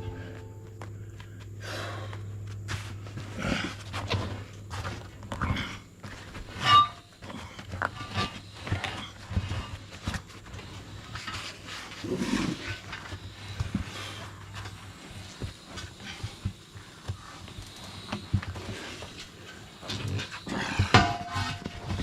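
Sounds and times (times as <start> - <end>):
loud ringing metal clang: 0.0 - 0.8, 21.0 - 21.7
metal knocks and clanks: 21.0 - 21.8.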